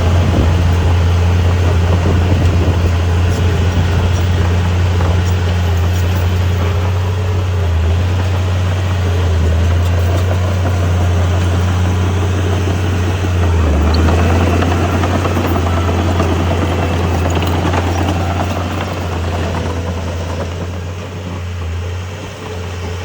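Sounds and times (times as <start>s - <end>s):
diesel engine low drone: 0.0s - 23.0s
rattling noise: 8.2s - 21.6s.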